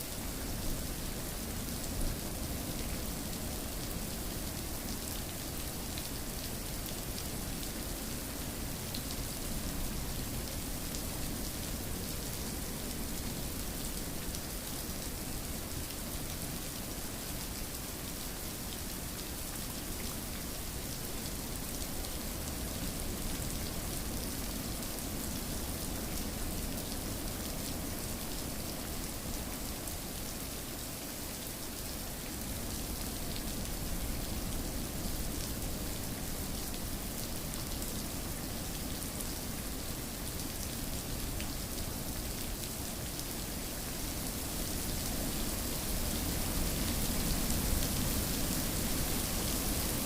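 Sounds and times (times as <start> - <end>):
steady rain: 0.0 - 50.0.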